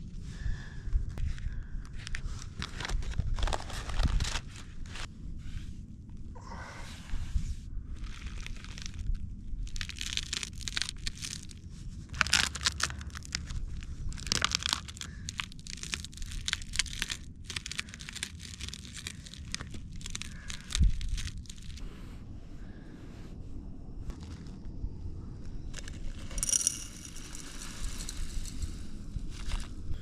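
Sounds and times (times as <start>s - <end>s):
paper crinkling and crunching: 1.4s - 5.1s, 8.0s - 21.8s, 29.3s - 29.8s.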